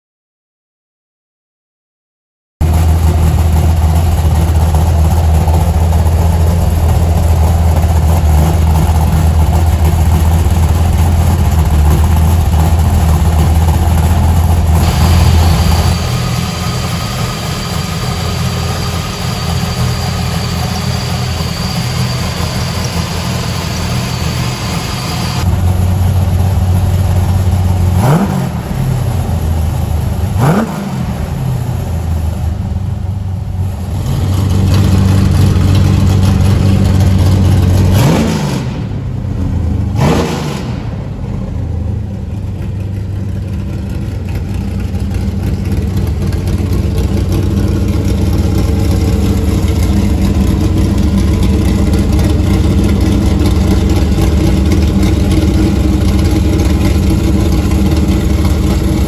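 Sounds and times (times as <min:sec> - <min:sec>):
engine revving: 0:02.6 - 0:25.8, 0:27.7 - 0:32.1, 0:33.8 - 0:42.2
thin high engine whine: 0:02.6 - 0:27.9, 0:40.6 - 0:59.0
car engine idling: 0:02.6 - 0:59.0.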